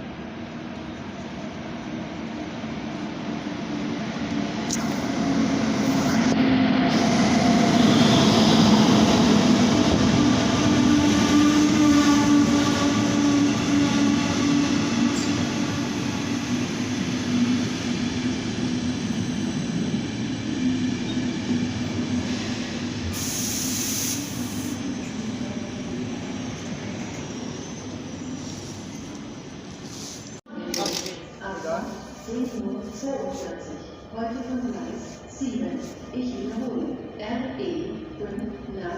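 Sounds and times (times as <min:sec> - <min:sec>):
train rumbling: 0:00.0 - 0:38.9
air hiss: 0:23.1 - 0:24.8.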